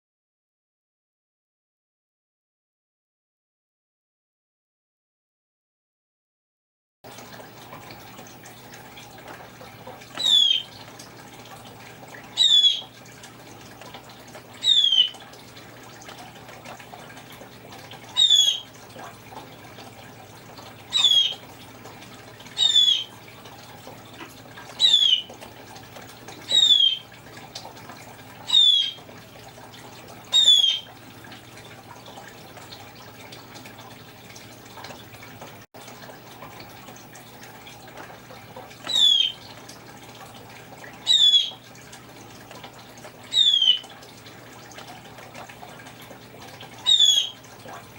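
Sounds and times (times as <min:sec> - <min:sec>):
parrot mimicking bird calls: 0:10.2 - 0:10.7, 0:12.4 - 0:12.9, 0:14.6 - 0:15.1, 0:18.2 - 0:18.6, 0:20.9 - 0:21.4, 0:22.6 - 0:23.1, 0:24.8 - 0:25.3, 0:26.5 - 0:27.0, 0:28.5 - 0:29.0, 0:30.3 - 0:30.8, 0:38.9 - 0:39.4, 0:41.0 - 0:41.6, 0:43.3 - 0:43.8, 0:46.8 - 0:47.4.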